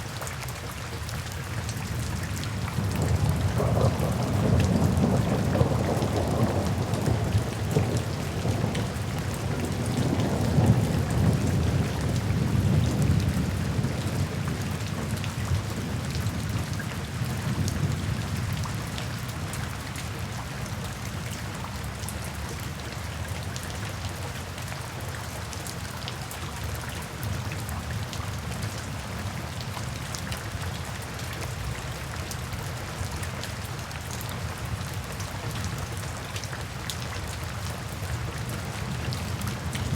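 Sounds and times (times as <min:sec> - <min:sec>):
rain pattering: 0:00.0 - 0:39.9
rolling thunder: 0:02.8 - 0:16.0.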